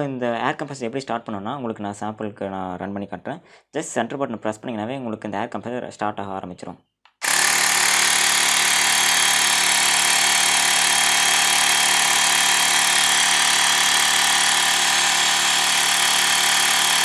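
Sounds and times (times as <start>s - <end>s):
air compressor buzzing drone: 7.2s - 17.0s.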